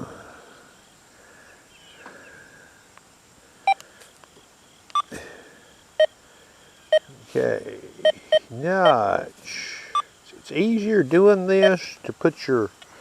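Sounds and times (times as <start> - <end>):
metal detector beeps: 8.0 - 9.0.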